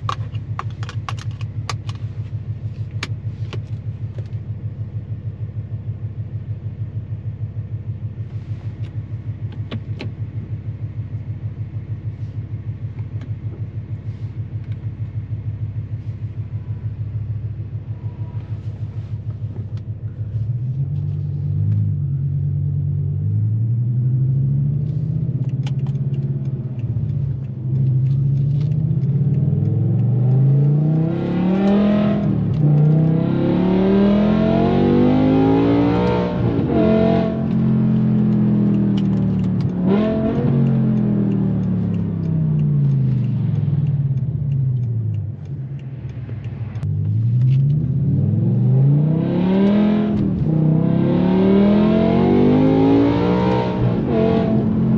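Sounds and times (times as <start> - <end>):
car engine revving: 14.0 - 54.9.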